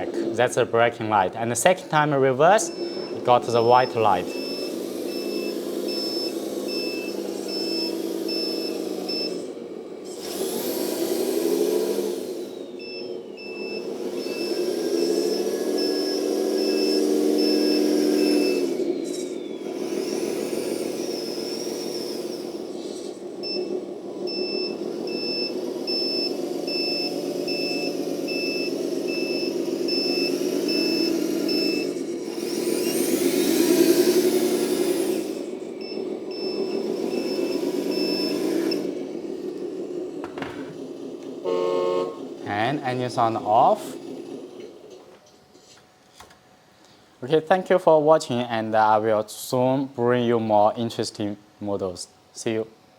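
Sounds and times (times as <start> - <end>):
simulated truck engine: 0.0 - 48.9
reversing beep: 2.6 - 9.5, 12.8 - 19.6, 23.4 - 23.7, 24.3 - 32.1, 35.4 - 38.9.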